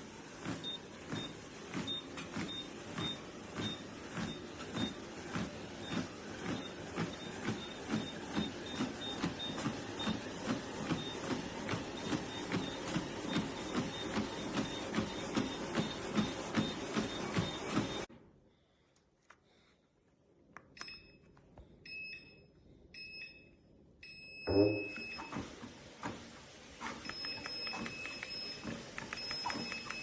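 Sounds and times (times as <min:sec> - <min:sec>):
footsteps on treadmill belt: 0:00.0 - 0:18.1, 0:25.3 - 0:30.0
treadmill running noise: 0:00.0 - 0:18.1, 0:24.5 - 0:30.0.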